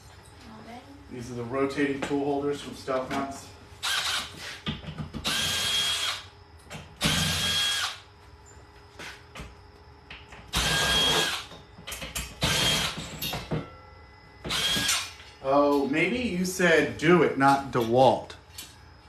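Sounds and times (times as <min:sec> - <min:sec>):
power drill whining: 0:03.8 - 0:04.4, 0:05.2 - 0:06.2, 0:07.0 - 0:08.0, 0:10.5 - 0:11.5, 0:12.4 - 0:13.0, 0:14.5 - 0:15.1.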